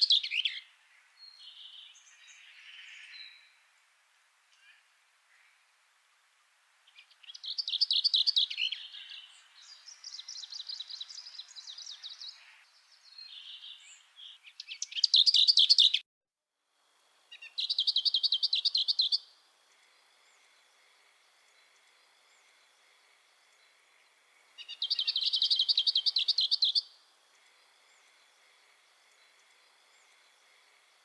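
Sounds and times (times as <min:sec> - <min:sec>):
songbirds trilling: 0:06.9 - 0:16.0, 0:17.3 - 0:31.0.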